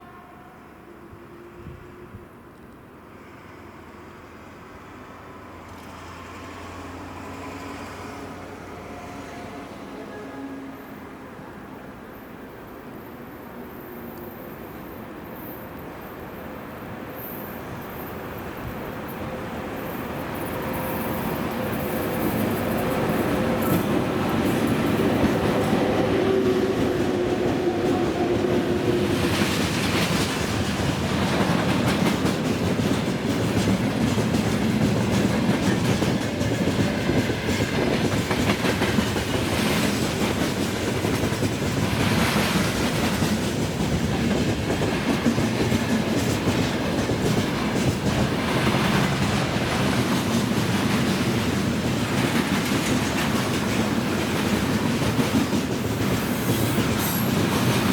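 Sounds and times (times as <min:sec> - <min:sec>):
train wheels rumbling on rail: 0:01.5 - 0:10.2, 0:13.5 - 0:57.9
clickety-clack over rail joints: 0:05.6 - 0:08.5, 0:17.8 - 0:57.9.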